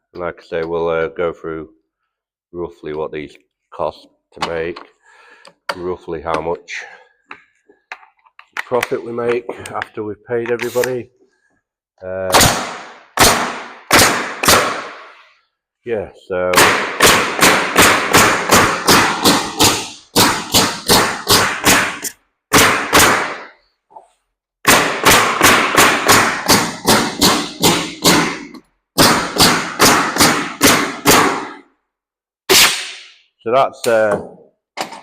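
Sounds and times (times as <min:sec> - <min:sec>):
nail gun firing into wood: 0:12.3 - 0:15.1, 0:16.6 - 0:23.5, 0:24.6 - 0:31.6, 0:32.5 - 0:33.2.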